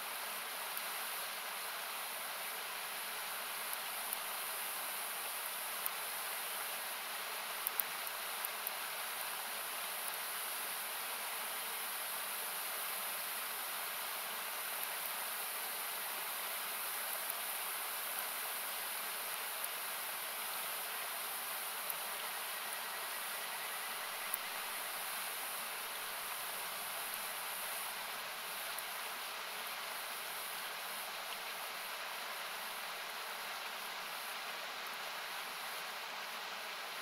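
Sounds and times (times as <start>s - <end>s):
campfire crackling: 7.6s - 9.4s.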